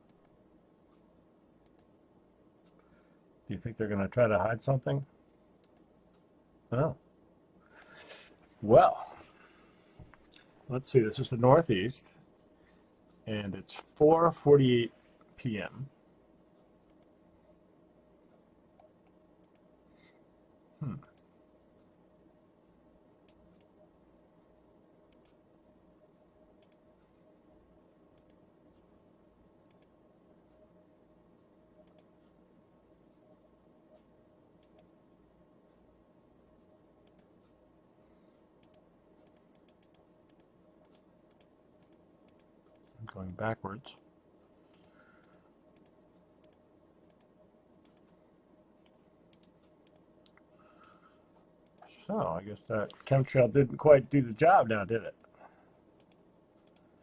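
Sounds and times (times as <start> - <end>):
faint computer clicks: 0.0 - 2.0, 5.1 - 6.3, 16.5 - 17.2, 18.3 - 19.7, 24.4 - 25.4, 26.5 - 27.3, 28.1 - 28.9, 29.6 - 30.7, 31.4 - 32.4, 33.9 - 35.0, 36.6 - 37.6, 38.3 - 48.2, 48.8 - 51.9, 55.1 - 57.0
low steady hum: 0.0 - 57.0.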